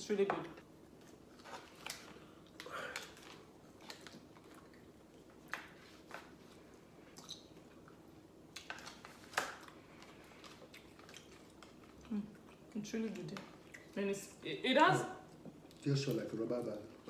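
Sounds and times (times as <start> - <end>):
person chewing with mouth smacks: 6.6 - 9.0, 9.6 - 14.0.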